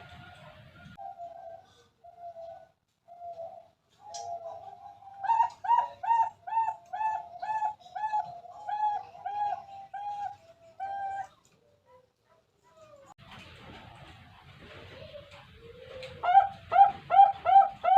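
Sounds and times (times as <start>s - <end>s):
dove cooing: 0.0s - 11.4s, 15.1s - 17.9s.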